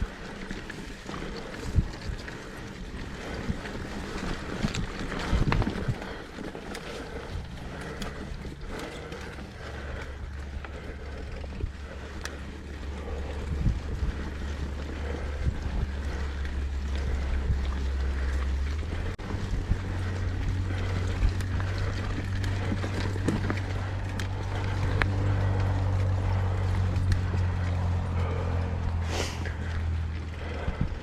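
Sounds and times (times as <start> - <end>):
bike knocks and rattles: 0.0 - 31.0
tyres on dirt: 0.0 - 31.0
wind buffeting microphone: 0.0 - 31.0.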